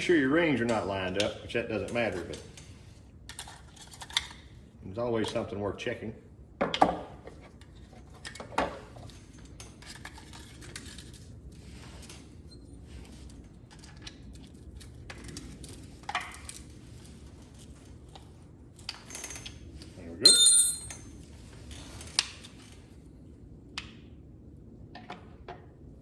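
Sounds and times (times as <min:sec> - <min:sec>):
metallic clinks of tools: 0:20.3 - 0:21.1.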